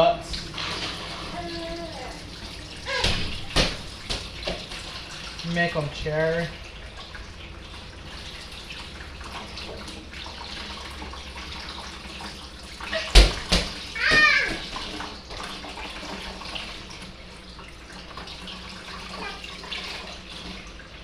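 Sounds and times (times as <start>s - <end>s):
water running from a tap: 0.0s - 21.0s.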